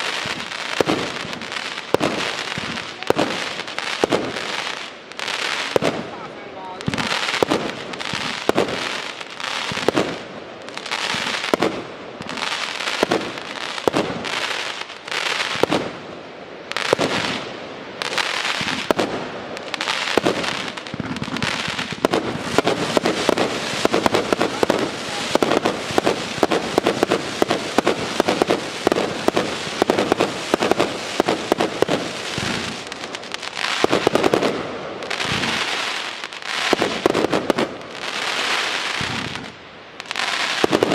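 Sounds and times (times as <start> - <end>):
firework cake firing shots: 0.0 - 4.6, 9.7 - 10.2, 20.1 - 32.8, 33.7 - 35.9.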